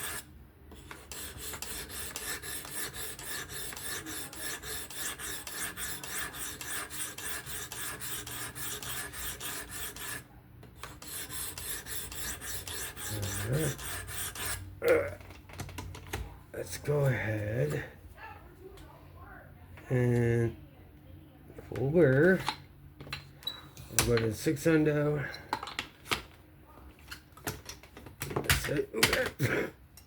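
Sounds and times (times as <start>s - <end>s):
knife blade rasping on sharpening stone: 0.0s - 10.2s, 10.8s - 14.6s.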